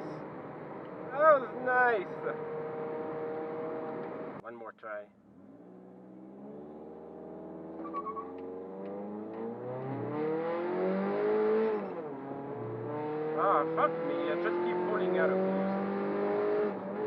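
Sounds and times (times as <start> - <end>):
man talking: 1.1 - 2.4, 4.4 - 5.1, 13.4 - 15.3
car engine accelerating hard: 2.1 - 4.4, 5.4 - 17.0.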